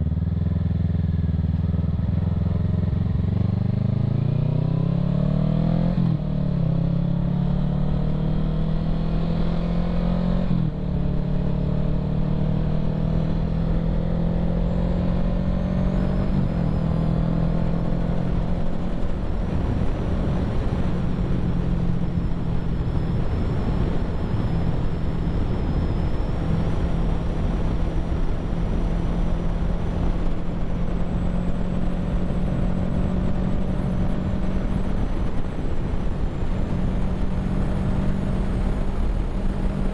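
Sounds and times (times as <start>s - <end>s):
wind noise on microphone: 14.7s - 39.9s.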